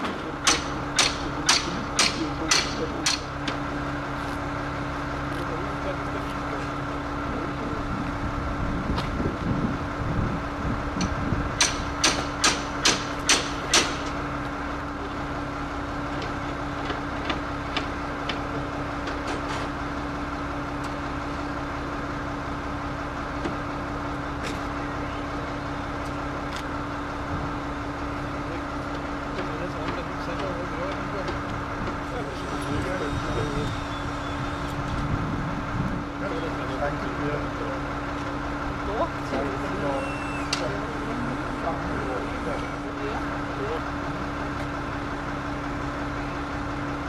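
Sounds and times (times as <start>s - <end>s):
hammer blows: 0.0s - 3.6s, 10.9s - 14.2s, 30.9s - 35.2s, 39.2s - 43.4s
engine running: 0.0s - 47.0s.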